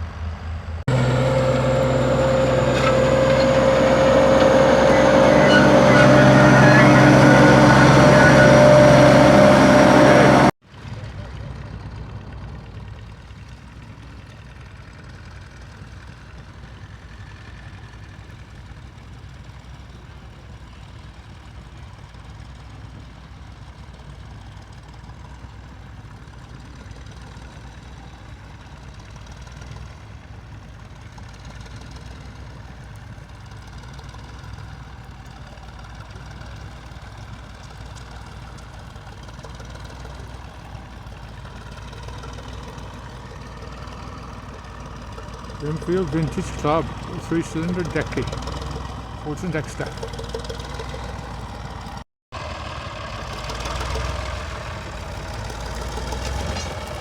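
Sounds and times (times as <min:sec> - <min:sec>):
tractor engine running: 0:00.0 - 0:10.6, 0:28.6 - 0:57.0.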